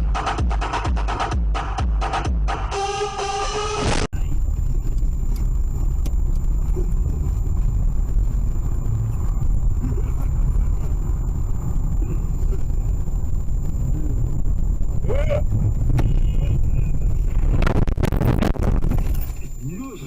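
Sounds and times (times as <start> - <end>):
car driving rumble: 4.1 - 20.0
faint high whine: 4.2 - 20.0.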